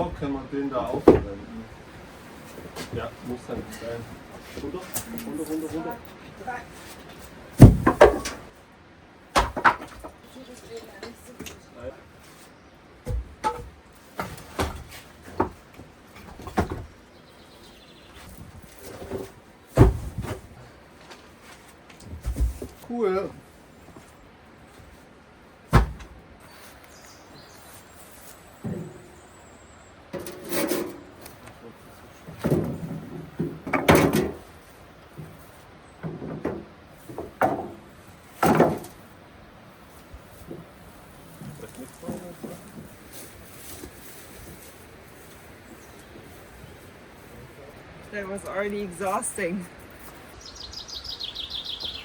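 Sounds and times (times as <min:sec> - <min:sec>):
rock dropped with deep thud: 0:07.6 - 0:08.4.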